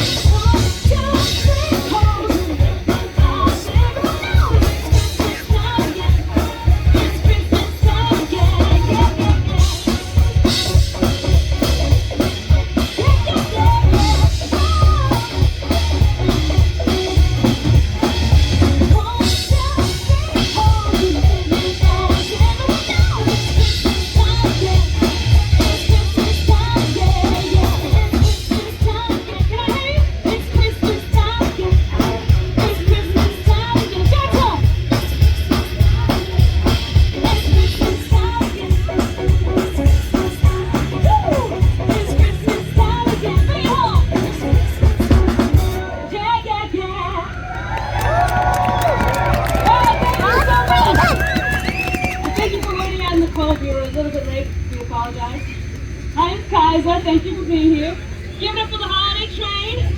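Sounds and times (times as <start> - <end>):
drum kit beat: 0.0 - 45.9, 48.0 - 54.0
live band music over speakers: 0.0 - 59.9.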